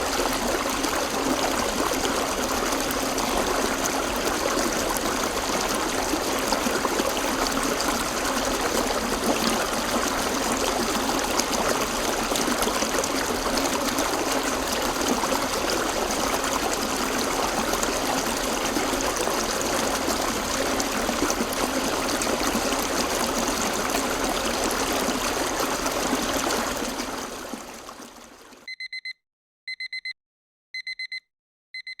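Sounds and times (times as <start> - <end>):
digital timer alarm beeping: 28.7 - 30.2, 30.8 - 32.0.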